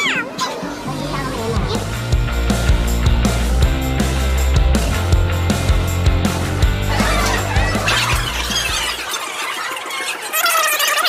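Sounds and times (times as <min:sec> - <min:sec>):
background music: 0:00.6 - 0:09.0
high-pitched squealing voices: 0:06.9 - 0:11.0.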